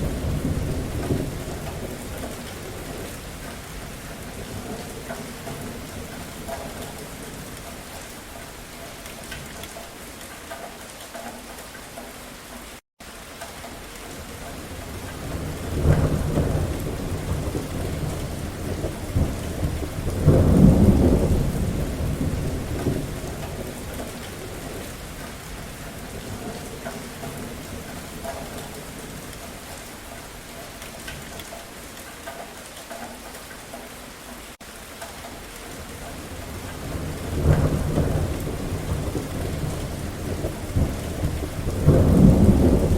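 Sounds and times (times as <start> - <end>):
thunder rumbling: 0.0 - 8.0, 14.2 - 29.8, 35.7 - 42.9
steady rain: 0.0 - 42.9.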